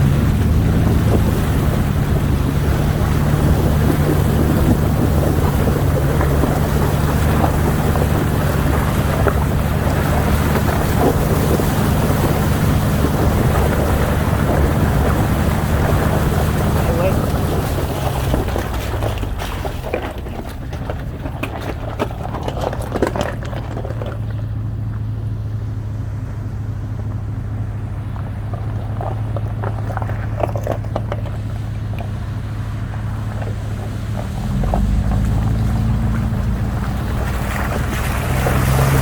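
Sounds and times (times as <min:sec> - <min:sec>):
vehicle engine droning: 0:00.0 - 0:39.0
clicks and rattles: 0:03.3 - 0:25.1, 0:28.2 - 0:32.4.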